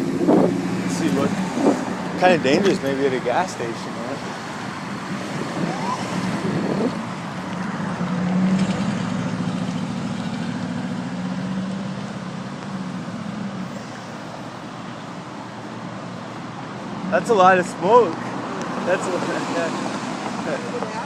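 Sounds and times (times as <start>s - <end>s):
traffic noise: 0.0s - 21.0s
vehicle engine humming: 0.0s - 21.0s.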